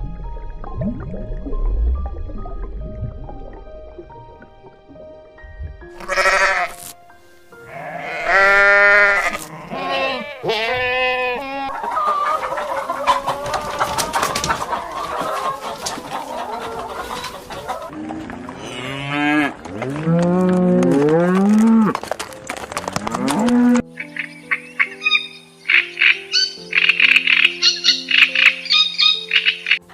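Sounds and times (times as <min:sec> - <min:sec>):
soft background music: 0:00.0 - 0:29.9
livestock bleating: 0:06.0 - 0:06.8, 0:07.6 - 0:11.8.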